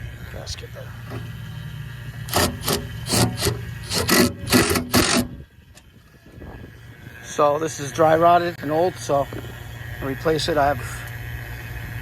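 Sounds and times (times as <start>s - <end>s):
steady low hum: 0.0s - 12.0s
hand scraping a gasket: 1.0s - 1.5s, 2.1s - 5.4s.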